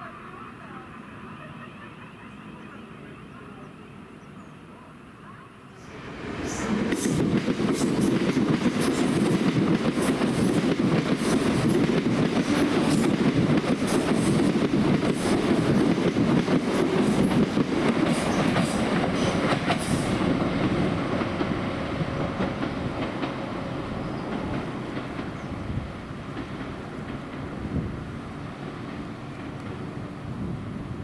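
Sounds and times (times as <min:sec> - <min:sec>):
train rumble: 0:05.8 - 0:31.0
train wheels clattering: 0:06.4 - 0:30.1.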